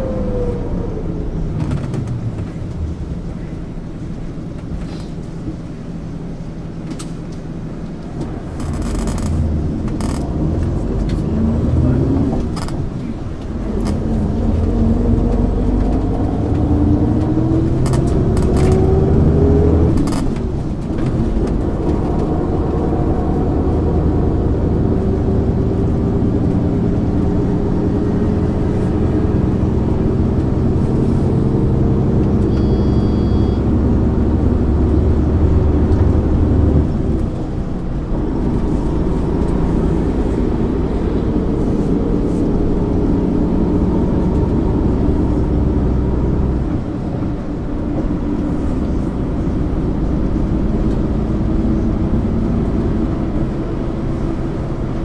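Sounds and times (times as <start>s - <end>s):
bus diesel engine pulling: 0.0s - 55.0s
short electronic beep: 32.4s - 33.7s.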